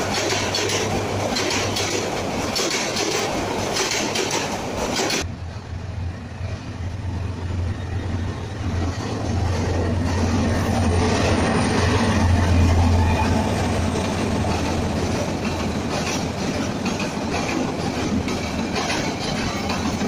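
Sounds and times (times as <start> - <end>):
train wheels clattering over rail joints: 0.0 - 5.3, 13.9 - 20.0
diesel locomotive engine drone: 0.0 - 20.0.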